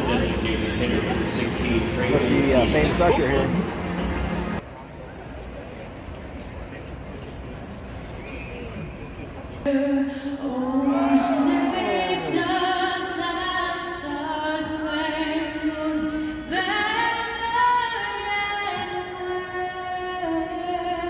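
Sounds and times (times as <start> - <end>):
woman singing over loudspeakers: 9.7 - 21.0.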